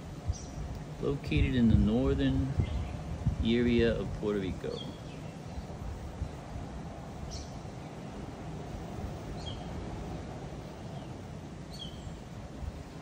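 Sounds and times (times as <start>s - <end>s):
high bird chirps: 7.2s - 8.2s, 9.3s - 9.8s, 10.7s - 12.2s.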